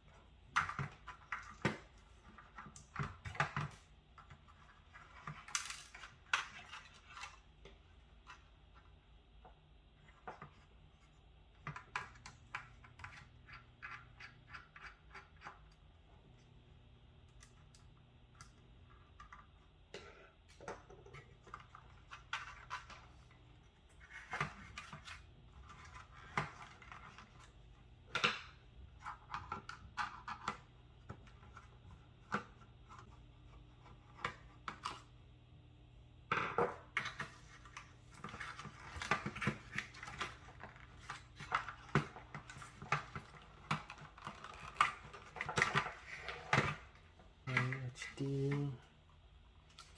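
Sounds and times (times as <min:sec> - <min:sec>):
computer parts clicking and scratching: 0:00.5 - 0:07.6, 0:37.2 - 0:46.9.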